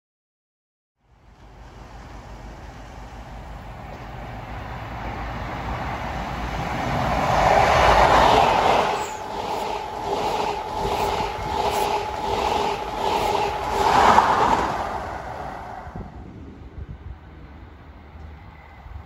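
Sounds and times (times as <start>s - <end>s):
train engines passing: 1.0s - 19.0s
train wheels on rails: 1.2s - 16.4s.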